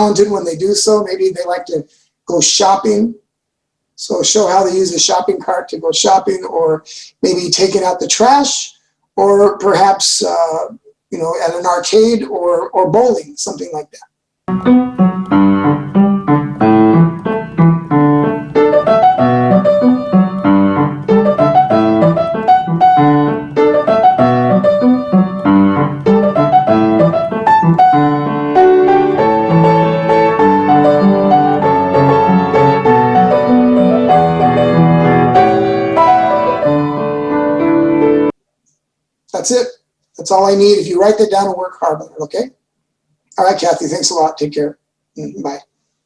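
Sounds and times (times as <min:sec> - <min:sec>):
solo piano: 0:14.5 - 0:38.4.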